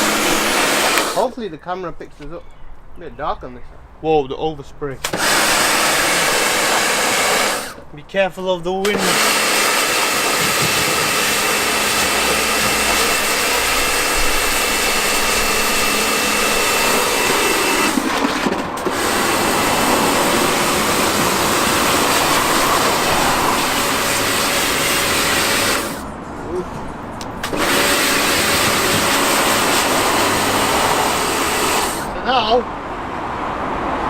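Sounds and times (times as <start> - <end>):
pressure washer motor whine: 0.0 - 1.3, 5.0 - 7.9, 8.8 - 26.1, 27.3 - 32.6
pressure washer water jet hissing: 0.0 - 1.3, 5.0 - 7.9, 8.8 - 26.1, 27.2 - 32.4.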